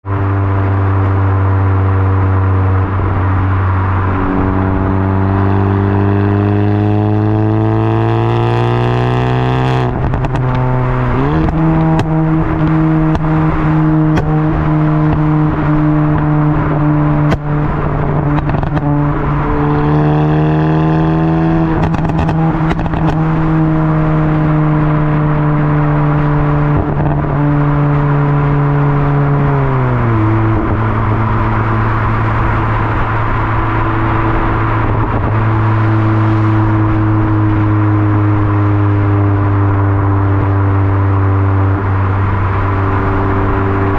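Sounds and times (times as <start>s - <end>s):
car engine accelerating: 0.0s - 43.9s
exhaust cracks: 9.5s - 19.8s, 21.5s - 28.2s.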